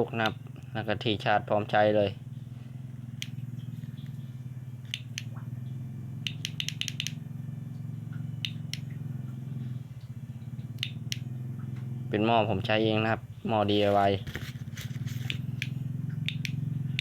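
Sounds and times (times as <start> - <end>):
sharp clicks: 4.8 - 5.4, 6.2 - 7.2, 8.1 - 9.0, 10.6 - 11.9, 15.2 - 17.0.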